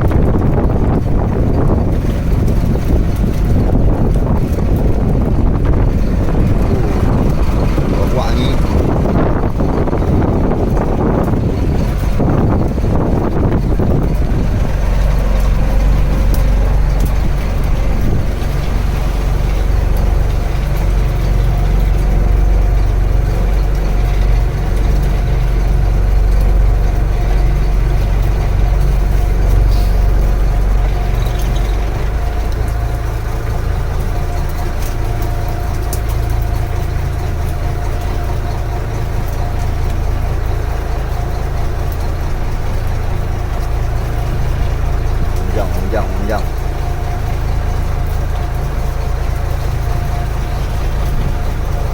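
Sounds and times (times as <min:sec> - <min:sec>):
boat engine droning: 0:00.0 - 0:51.9.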